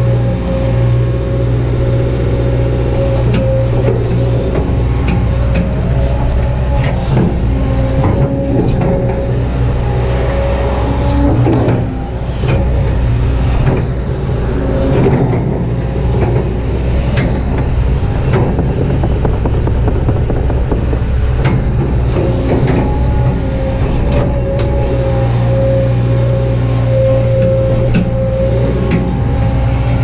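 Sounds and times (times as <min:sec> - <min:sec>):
engine whine: 0:00.0 - 0:30.0
excavator diesel engine running: 0:00.0 - 0:30.0
machine knocks and clicks: 0:14.8 - 0:24.7.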